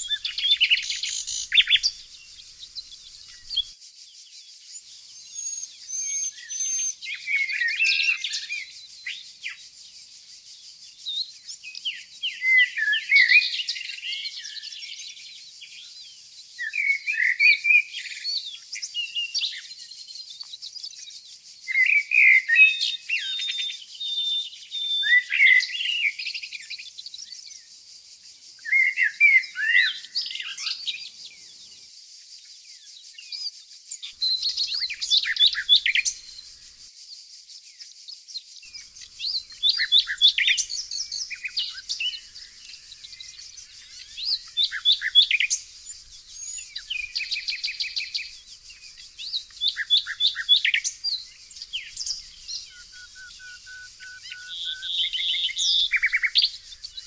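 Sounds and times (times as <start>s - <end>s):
faint high hiss: 0.0s - 3.7s, 38.7s - 57.0s
songbirds singing: 0.0s - 57.0s.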